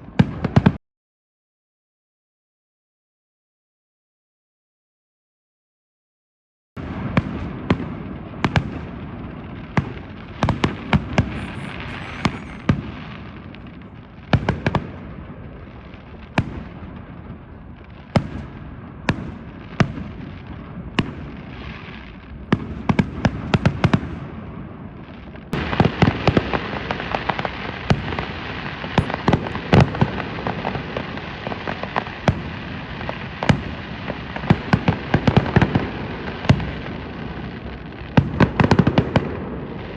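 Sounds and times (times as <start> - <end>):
bonfire flames roaring: 10.2 - 15.8.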